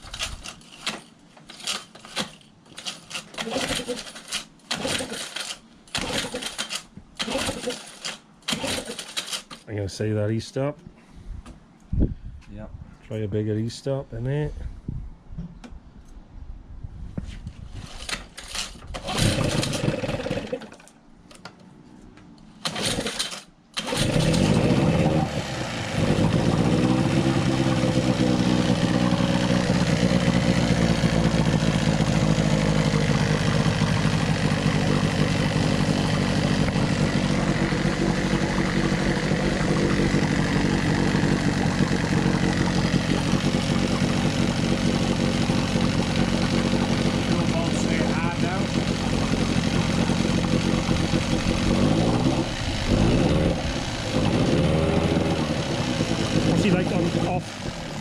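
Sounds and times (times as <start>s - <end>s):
outboard motor pull-start sputters: 0.0s - 9.6s, 17.9s - 20.9s, 22.6s - 58.0s
outboard motor running: 19.0s - 20.6s, 23.9s - 58.0s.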